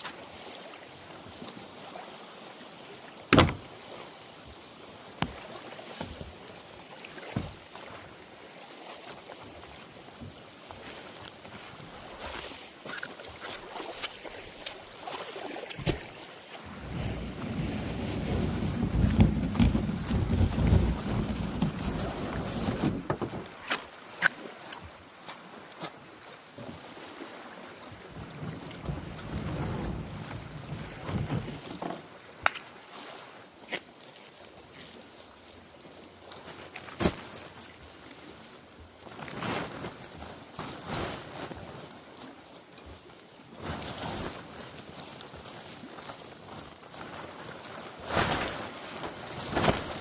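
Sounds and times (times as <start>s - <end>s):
kayak paddling water: 0.0s - 50.0s
knocks on kayak: 3.3s - 3.7s
wind rumbling on microphone: 16.7s - 23.5s.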